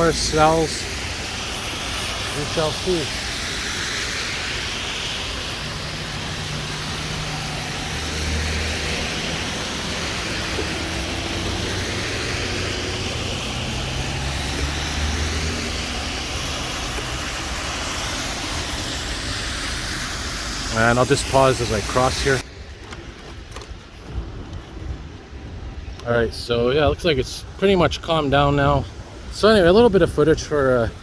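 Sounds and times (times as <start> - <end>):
steady hiss: 0.0 - 23.0
passing vehicle engines: 0.0 - 26.0.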